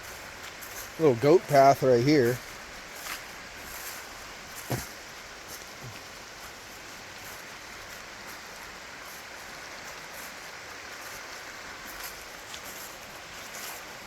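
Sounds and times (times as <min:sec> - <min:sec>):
flowing water rushing: 0:00.0 - 0:14.0.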